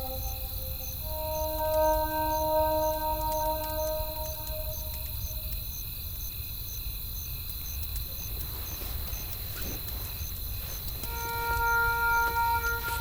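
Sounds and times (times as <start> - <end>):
soft melody: 0.0 - 5.5, 11.1 - 13.0
campfire crackling: 0.0 - 13.0
crickets chirping: 0.0 - 13.0
high insect trill: 0.0 - 13.0.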